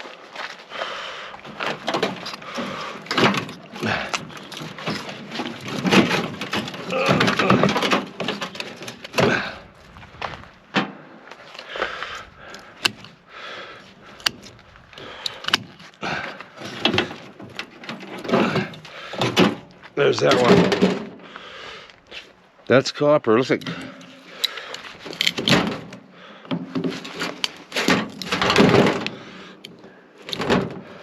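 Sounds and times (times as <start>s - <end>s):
sheet metal scraping and rattling: 1.5s - 9.5s, 16.6s - 21.2s, 23.6s - 29.2s.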